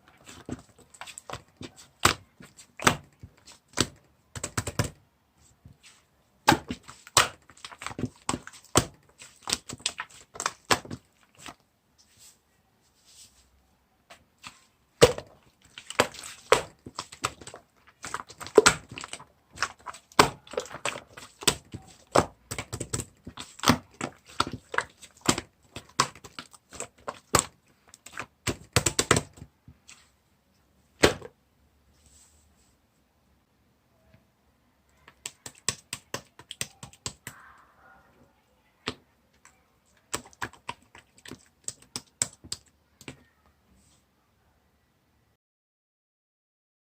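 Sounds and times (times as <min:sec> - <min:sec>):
slime squished by hand: 0:14.4 - 0:30.0, 0:40.0 - 0:43.2.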